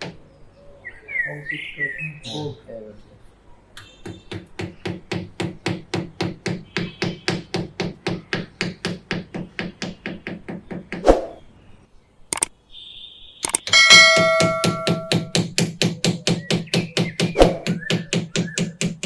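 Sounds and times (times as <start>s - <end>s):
hammer blows with low ring: 13.7s - 15.5s.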